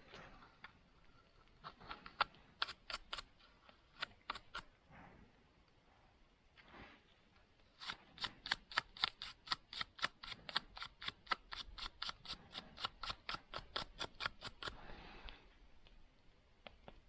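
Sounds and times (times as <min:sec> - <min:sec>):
metal tool filing saw teeth: 0:02.6 - 0:03.3, 0:07.8 - 0:14.8.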